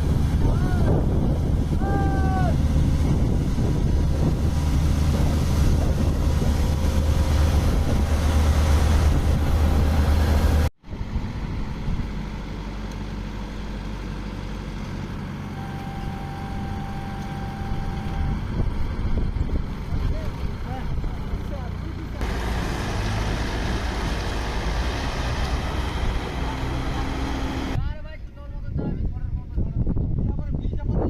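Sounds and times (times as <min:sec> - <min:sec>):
wind on microphone: 0:00.0 - 0:12.2, 0:27.7 - 0:31.0
tractor diesel engine running: 0:00.0 - 0:27.8.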